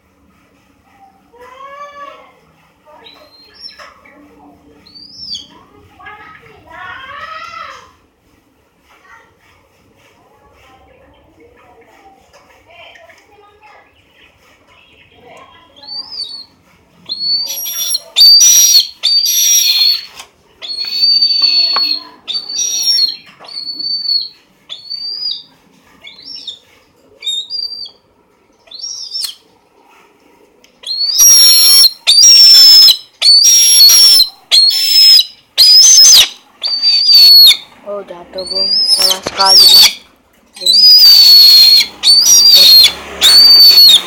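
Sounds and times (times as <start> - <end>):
eagle screaming: 17.1 - 25.4, 30.8 - 37.6, 38.4 - 40.0, 40.6 - 44.0.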